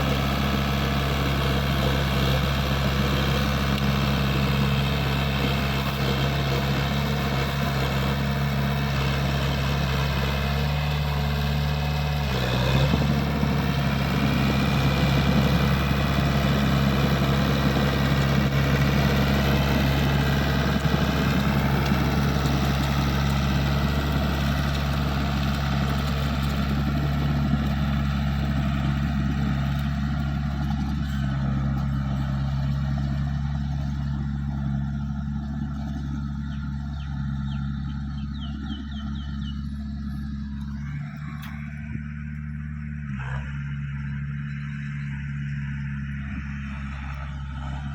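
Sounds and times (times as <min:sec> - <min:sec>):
bulldozer diesel engine running: 0:00.0 - 0:47.9.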